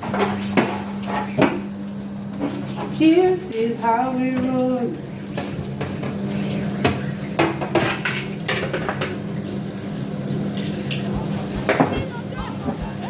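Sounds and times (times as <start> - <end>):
utensils clinking on pots and dishes: 0.0 - 1.7, 2.3 - 13.0
steady low hum: 3.0 - 13.0.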